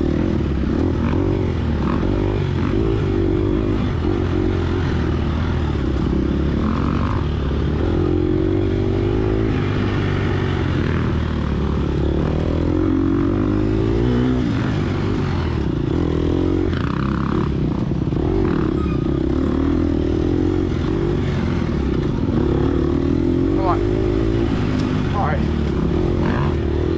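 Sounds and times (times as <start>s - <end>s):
dirt bike engine revving: 20.9s - 26.9s.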